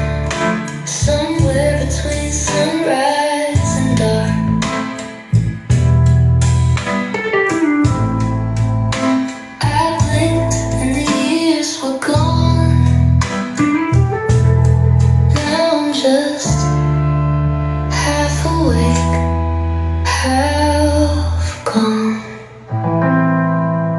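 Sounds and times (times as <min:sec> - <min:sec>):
person singing: 0:00.0 - 0:05.4, 0:09.0 - 0:13.6, 0:15.3 - 0:17.0, 0:17.8 - 0:22.8
plucked guitar: 0:00.0 - 0:21.9, 0:22.7 - 0:23.9
bass: 0:00.0 - 0:23.9.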